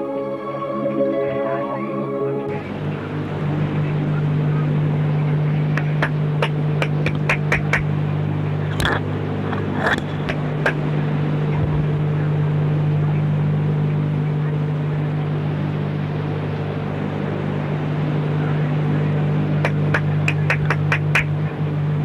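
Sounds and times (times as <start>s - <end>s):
low electrical hum: 2.5s - 22.0s
rapid sharp clicks: 5.8s - 7.9s, 8.7s - 10.8s, 19.6s - 21.3s.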